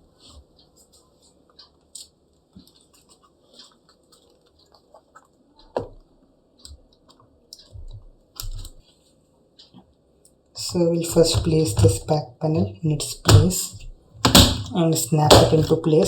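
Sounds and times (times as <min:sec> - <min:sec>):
knocks: 0:13.2 - 0:15.8.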